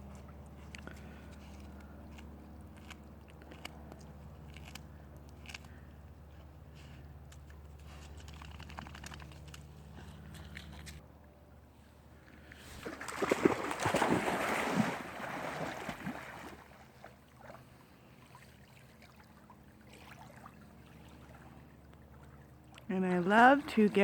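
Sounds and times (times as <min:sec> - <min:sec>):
water lapping: 0:12.2 - 0:24.0
dog swimming splashing water: 0:12.6 - 0:24.0.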